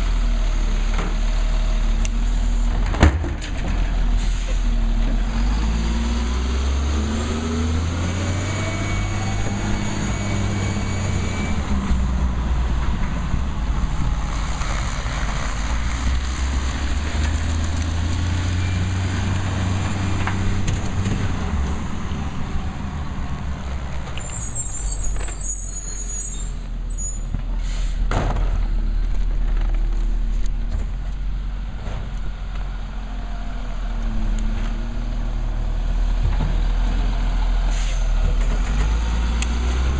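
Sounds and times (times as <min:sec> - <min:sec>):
air brake hiss: 0:04.2 - 0:04.7, 0:27.6 - 0:28.1, 0:37.7 - 0:38.1.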